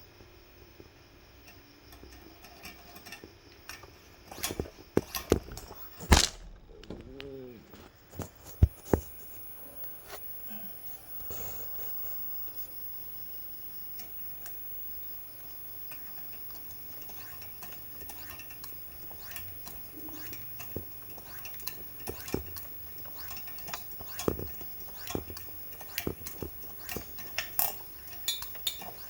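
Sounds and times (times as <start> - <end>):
light metal clinks and knocks: 19.7 - 29.0.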